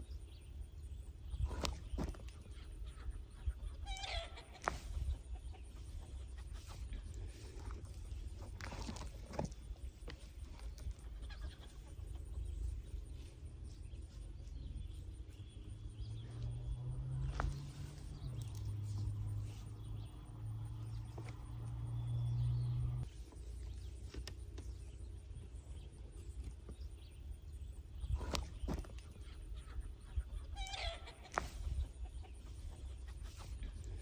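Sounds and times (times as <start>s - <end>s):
steady low hum: 0.0s - 34.0s
soil and foliage rustling: 1.1s - 3.2s, 3.8s - 25.0s, 25.8s - 29.6s.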